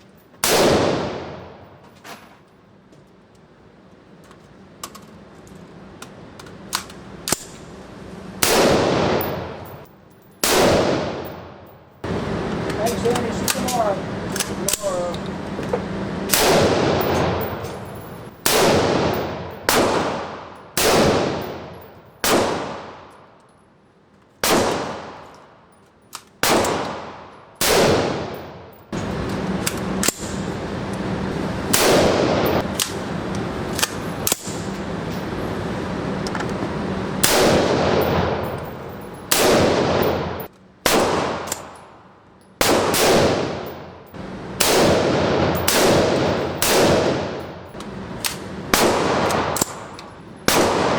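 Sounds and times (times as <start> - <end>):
gunshots echoing: 0.4 - 1.8, 8.4 - 12.1, 16.3 - 23.2, 24.4 - 25.4, 26.4 - 28.8, 31.7 - 33.1, 37.2 - 42.0, 42.6 - 47.8, 48.4 - 50.9.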